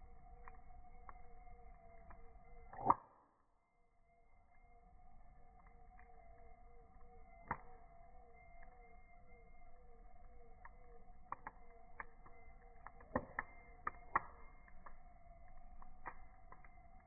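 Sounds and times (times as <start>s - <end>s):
campfire crackling: 0.0s - 3.0s, 3.9s - 17.0s.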